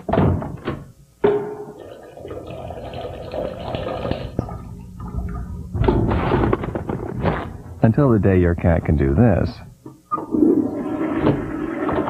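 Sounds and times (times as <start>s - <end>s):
toilet flushing: 1.7s - 6.0s, 10.3s - 12.0s.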